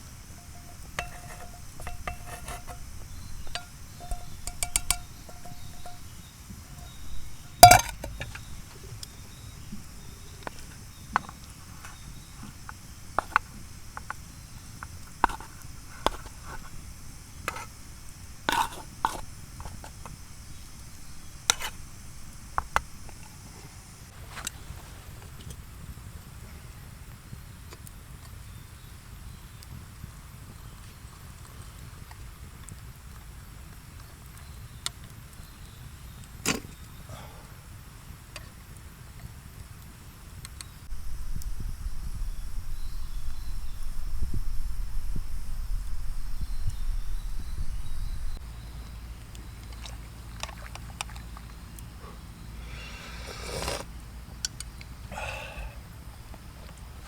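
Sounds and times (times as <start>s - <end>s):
steady high hiss: 0.0s - 34.0s, 34.8s - 50.3s, 51.5s - 57.0s
utensils clinking on metal cookware: 0.2s - 9.0s.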